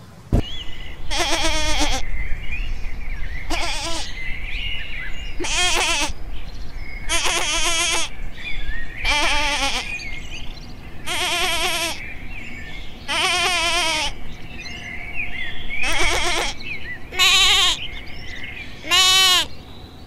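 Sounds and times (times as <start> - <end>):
goat bleating: 1.1 - 2.0, 3.5 - 4.2, 5.4 - 6.2, 7.1 - 8.1, 9.0 - 10.0, 11.0 - 12.0, 13.1 - 14.2, 15.8 - 17.8, 18.8 - 19.5.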